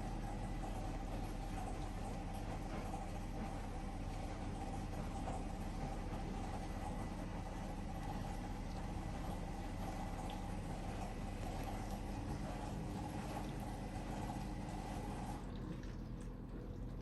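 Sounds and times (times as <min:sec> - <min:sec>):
dishwasher water rushing: 0:00.0 - 0:17.0
faint water drips: 0:00.0 - 0:17.0.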